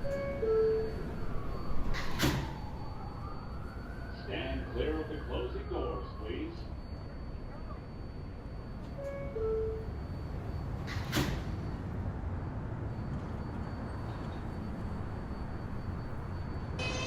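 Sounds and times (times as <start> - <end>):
subway car low rumble: 0.0 - 17.0
traction motors whining: 0.0 - 17.0
two-note door chime: 16.8 - 17.0.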